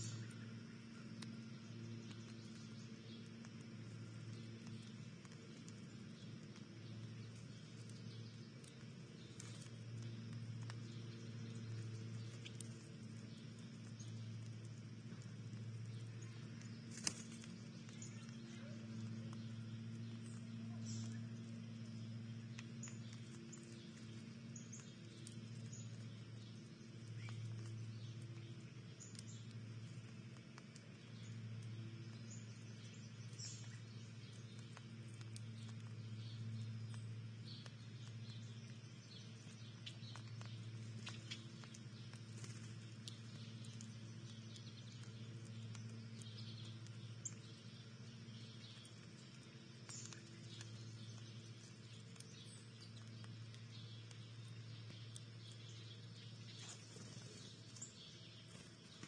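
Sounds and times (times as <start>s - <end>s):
faint bird chirps: 0.0s - 30.1s
small ticks and pattering: 0.0s - 59.0s
steady low hum: 0.0s - 59.0s.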